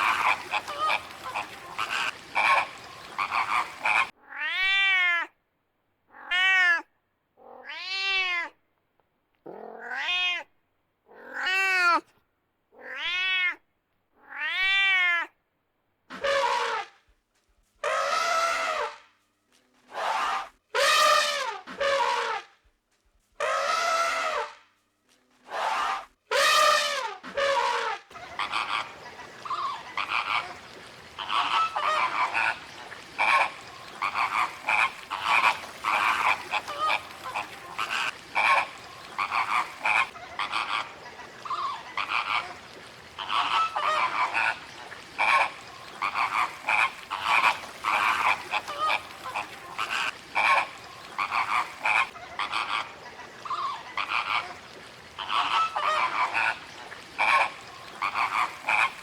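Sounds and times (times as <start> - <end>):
repeated animal calls: 0.0 - 4.9, 25.5 - 59.0.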